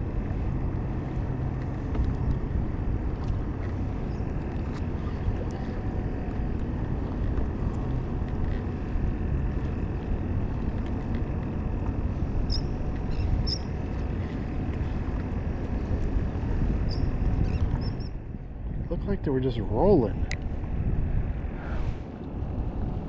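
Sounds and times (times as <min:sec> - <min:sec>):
water noise around boat: 0:00.0 - 0:23.0
wind rumble on microphone: 0:00.0 - 0:23.0.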